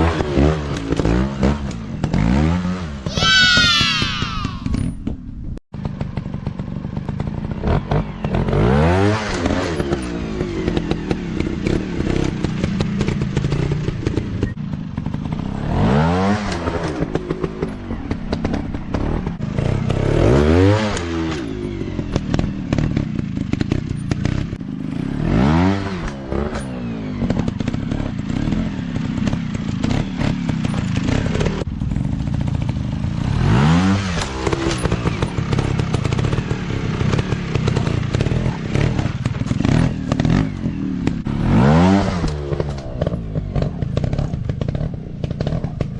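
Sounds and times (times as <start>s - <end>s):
dirt bike engine revving: 18.2s - 31.6s, 33.1s - 45.9s.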